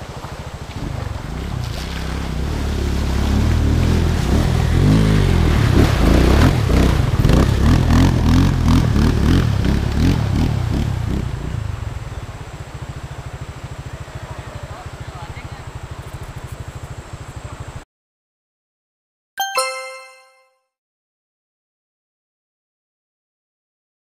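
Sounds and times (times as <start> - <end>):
water splashing: 0.0 - 8.0
dirt bike engine revving: 2.3 - 11.2.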